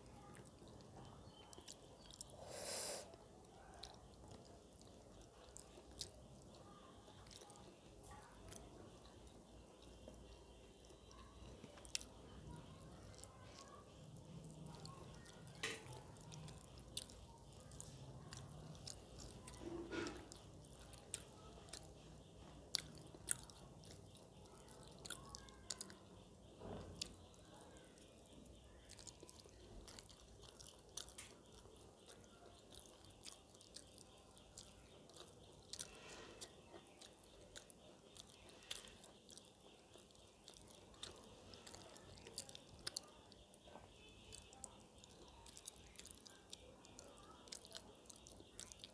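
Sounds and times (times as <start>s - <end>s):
person chewing: 0.0s - 48.9s.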